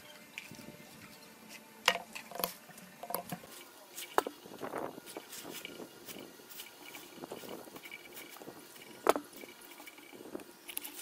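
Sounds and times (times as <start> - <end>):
handling rustle: 2.2 - 11.0.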